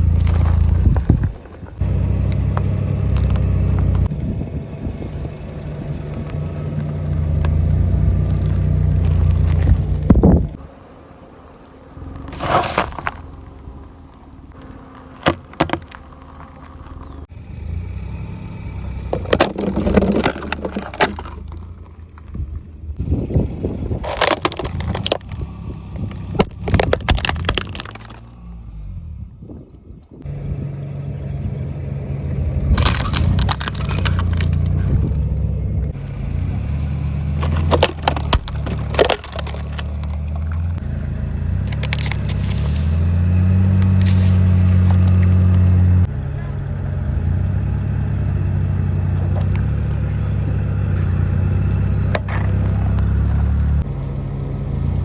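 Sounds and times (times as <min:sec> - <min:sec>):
car engine running: 0:00.0 - 0:55.0
tyres crushing brittle objects: 0:12.2 - 0:17.3, 0:19.1 - 0:21.7, 0:24.0 - 0:25.4, 0:26.4 - 0:28.4, 0:32.7 - 0:35.2, 0:36.0 - 0:40.8, 0:41.6 - 0:45.8, 0:49.0 - 0:53.9.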